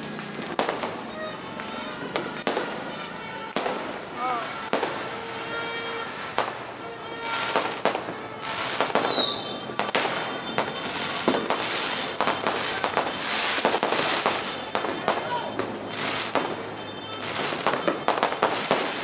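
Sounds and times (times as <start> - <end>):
fireworks bangs: 0.0 - 19.0
fireworks crackling: 0.0 - 19.0
falling whistle: 9.0 - 9.6.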